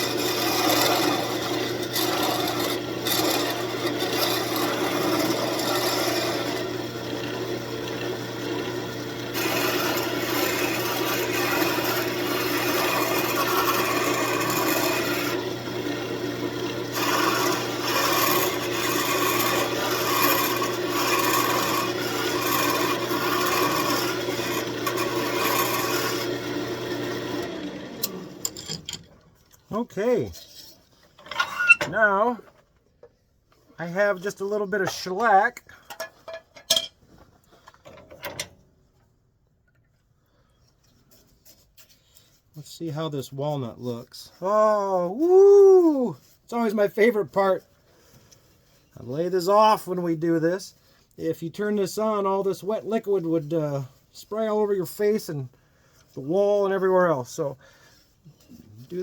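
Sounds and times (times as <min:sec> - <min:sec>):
sandpaper rubbing on spinning wood: 0:00.0 - 0:06.7, 0:09.3 - 0:15.4, 0:16.9 - 0:26.4
lathe motor humming: 0:00.0 - 0:28.6.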